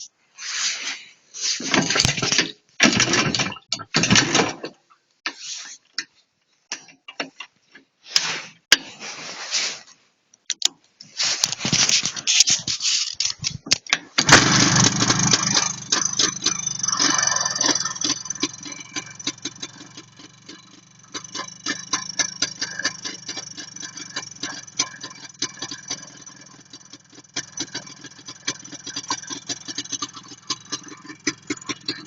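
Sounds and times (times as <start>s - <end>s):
motorcycle engine starting and running: 1.7s - 4.6s, 13.2s - 32.0s.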